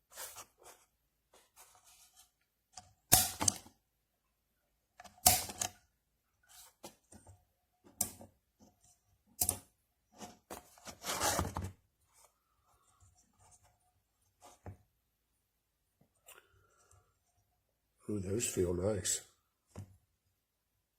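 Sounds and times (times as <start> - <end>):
rustling scrape: 0.0 - 2.4, 6.4 - 7.0, 10.2 - 14.7.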